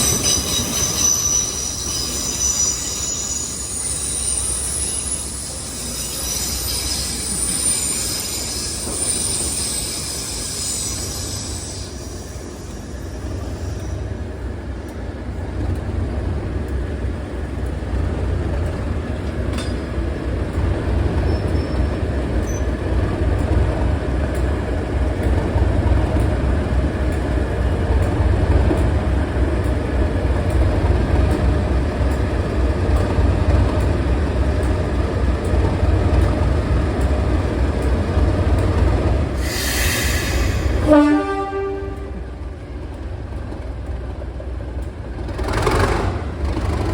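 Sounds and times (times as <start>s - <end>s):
short shrill sound: 0.0s - 13.8s, 39.4s - 41.2s
diesel locomotive engine rumbling: 0.0s - 46.9s.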